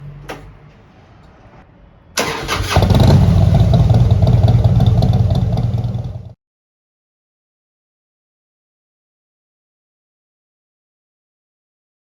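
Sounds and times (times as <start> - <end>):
motorcycle engine running: 2.7 - 6.4.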